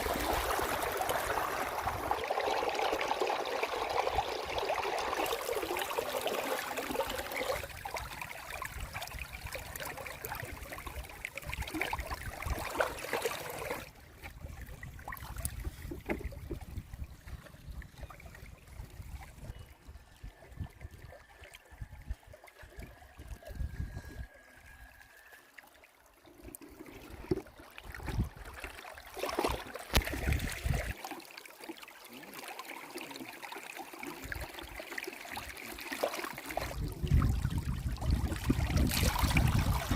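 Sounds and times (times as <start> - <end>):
river water flowing: 0.0 - 15.4.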